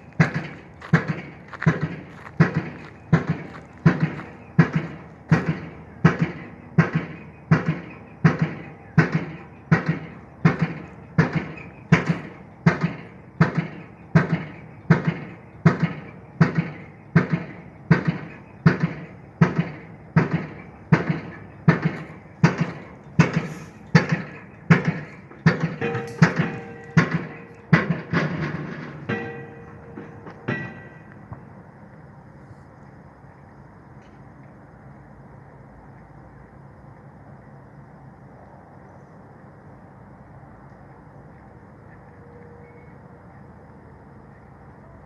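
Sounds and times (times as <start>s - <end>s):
pile driver metallic blows: 0.0s - 31.9s.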